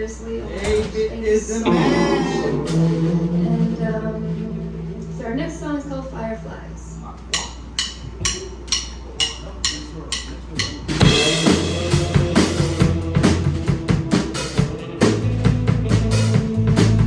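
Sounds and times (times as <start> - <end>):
live rock band playing: 1.6 - 5.7, 10.9 - 17.0
low bass notes: 1.6 - 9.2, 10.8 - 17.0.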